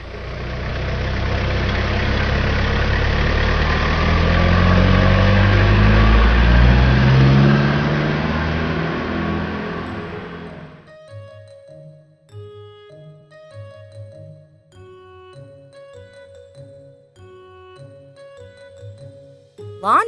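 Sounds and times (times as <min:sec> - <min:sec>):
truck engine running: 0:00.0 - 0:06.2.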